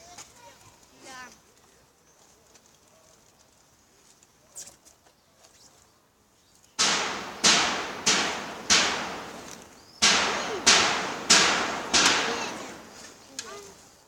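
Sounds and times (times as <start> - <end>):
sharp bangs on roof sheeting: 6.8 - 13.2.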